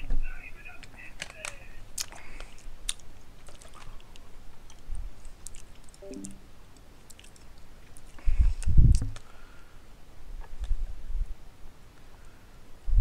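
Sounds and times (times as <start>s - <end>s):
person chewing noodles: 2.0s - 6.0s, 7.0s - 8.2s.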